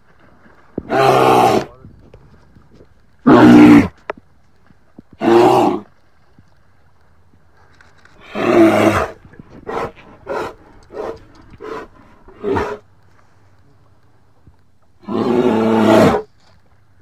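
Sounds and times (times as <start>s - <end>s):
bear growls: 8.2s - 12.8s
bear roaring: 8.2s - 12.8s.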